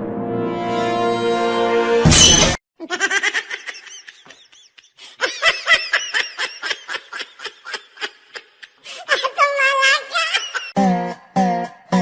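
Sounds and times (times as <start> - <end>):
high-pitched giggling: 2.8 - 10.8.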